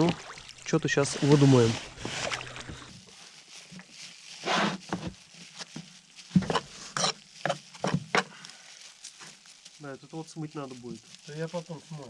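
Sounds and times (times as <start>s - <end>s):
irregular short knocks and scrapes: 4.4s - 8.3s.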